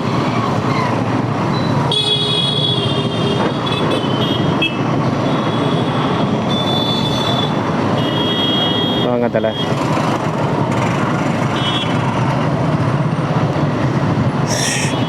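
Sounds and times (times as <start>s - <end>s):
traffic jam noise: 0.0s - 15.0s
high-pitched shrill vehicle tone: 14.4s - 15.0s.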